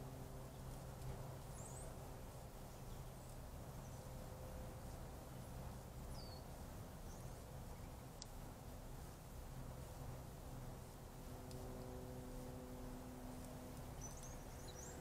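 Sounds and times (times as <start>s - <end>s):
steady low hum: 0.0s - 15.0s
faint bird chirps: 6.1s - 8.0s, 13.9s - 15.0s.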